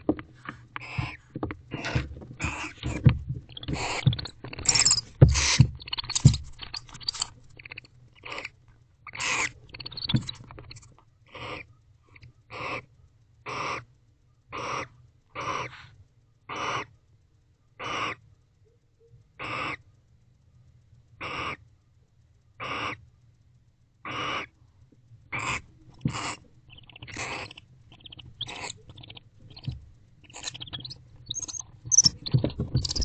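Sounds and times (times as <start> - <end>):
owl hissing calls: 0.8 - 8.5, 9.1 - 11.7, 12.5 - 12.9, 13.5 - 13.9, 14.5 - 16.9, 17.8 - 18.2, 19.4 - 19.8, 21.2 - 21.6, 22.6 - 23.0, 24.0 - 24.5, 25.3 - 33.0.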